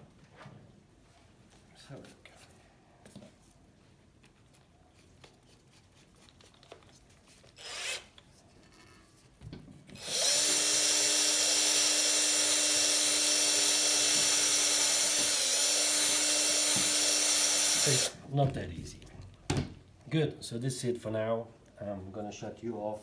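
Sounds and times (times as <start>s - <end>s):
faint handling sounds: 0.1s - 9.9s
high-speed power tool hissing: 10.0s - 18.2s.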